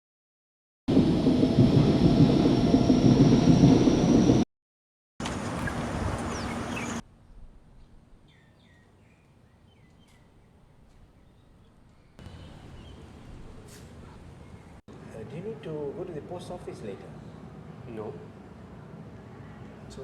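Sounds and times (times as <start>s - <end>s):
loud low rumble: 0.9s - 4.4s
birds chirping: 5.2s - 7.0s, 8.3s - 14.8s.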